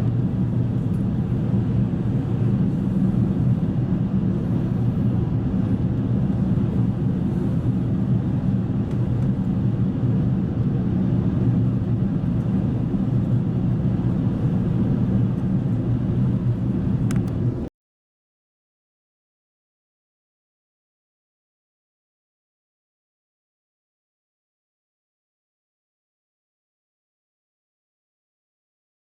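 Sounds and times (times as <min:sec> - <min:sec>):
airliner cabin rumble: 0:00.0 - 0:17.7.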